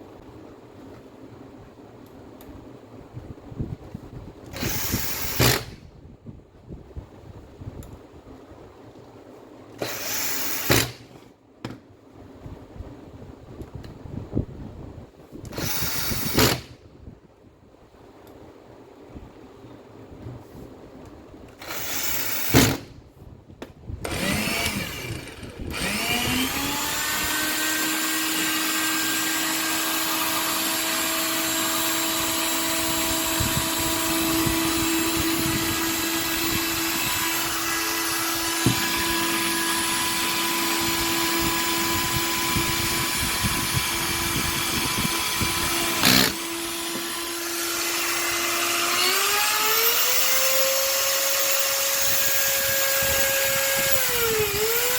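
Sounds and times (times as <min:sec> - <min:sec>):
angle grinder motor whine: 0:24.1 - 0:54.9.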